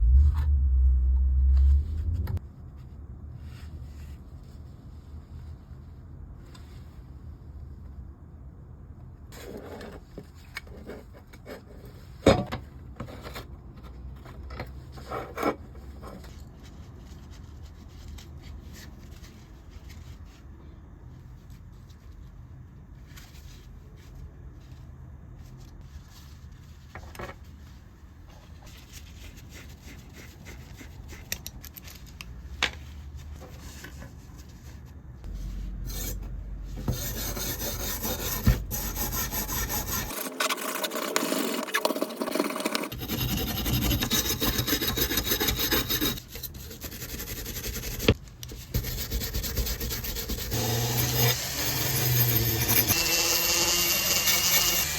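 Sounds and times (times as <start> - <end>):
rubbing and scraping: 32.8 - 51.0.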